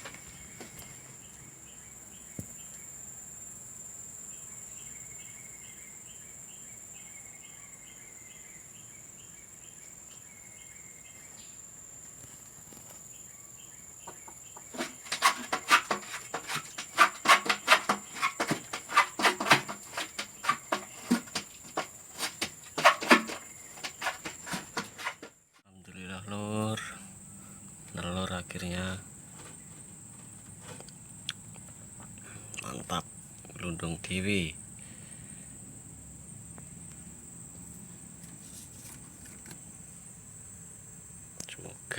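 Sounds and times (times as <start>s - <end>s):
high insect hiss: 0.0s - 25.4s, 26.2s - 41.9s
insect chirping: 0.0s - 41.9s.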